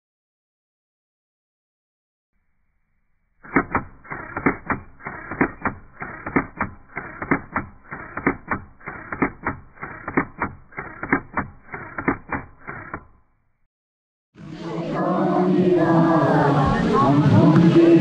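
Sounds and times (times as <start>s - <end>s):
rhythmic dull clicks: 3.5s - 13.2s.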